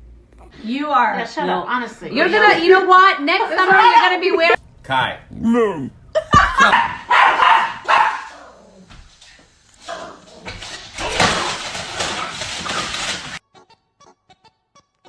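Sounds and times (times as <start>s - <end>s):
dog barking: 6.4s - 8.6s.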